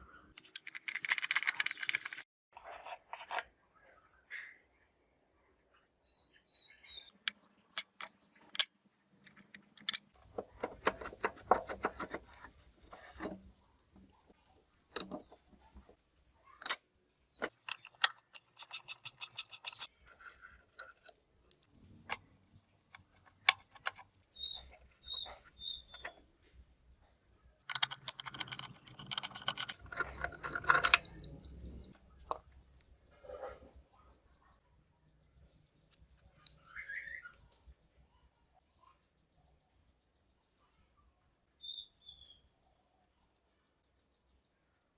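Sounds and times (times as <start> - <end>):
small hard parts clicking: 0.3 - 2.3, 7.1 - 13.4, 16.6 - 26.2, 27.6 - 32.6.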